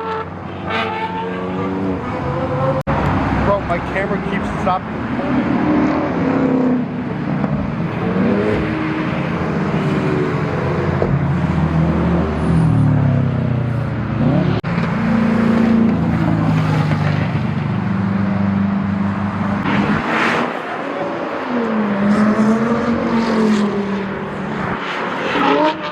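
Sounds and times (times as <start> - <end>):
car engines revving: 0.0 - 25.9
tyre and road noise: 0.0 - 25.9.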